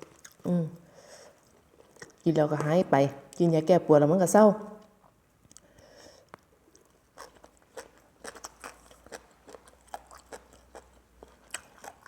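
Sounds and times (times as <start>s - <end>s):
person chewing crunchy food: 0.0s - 2.3s, 5.4s - 12.0s.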